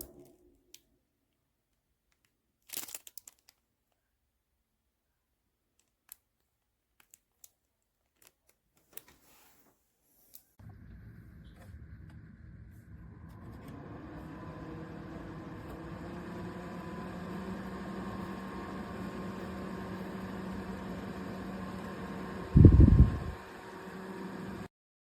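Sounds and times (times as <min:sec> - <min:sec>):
cooling fan motor humming: 0:10.6 - 0:24.7.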